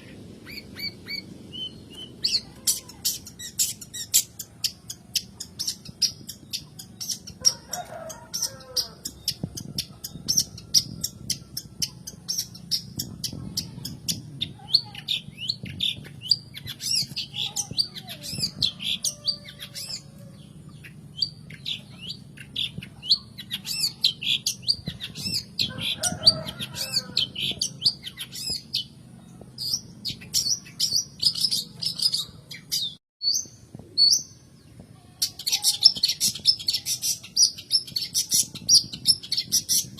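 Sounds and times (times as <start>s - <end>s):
bird harsh scratchy calls: 2.0s - 20.1s, 35.2s - 39.9s.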